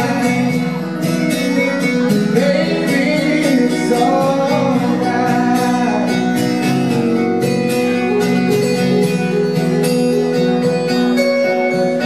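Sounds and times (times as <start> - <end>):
man singing: 0.0 - 7.0
acoustic guitars strumming: 0.0 - 12.0.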